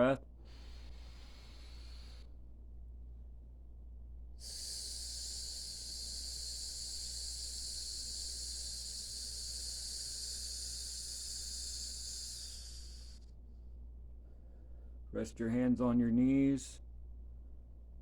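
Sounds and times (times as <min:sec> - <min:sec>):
person hissing through teeth: 0:00.5 - 0:02.3, 0:04.4 - 0:13.2.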